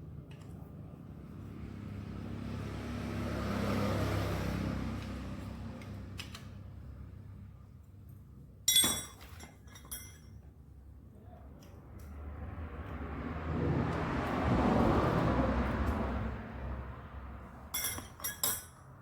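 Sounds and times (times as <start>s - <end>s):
vehicle engine noise: 0.6s - 7.7s, 11.5s - 18.8s
metallic clink: 8.7s - 10.4s, 17.7s - 19.0s.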